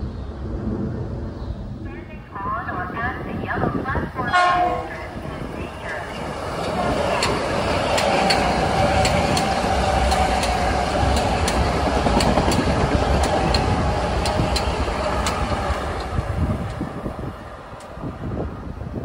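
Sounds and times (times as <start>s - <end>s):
continuous train hum: 0.0s - 19.0s
train wheels rumbling on rail: 2.4s - 19.0s
wheels clicking over rail joints: 5.9s - 16.8s.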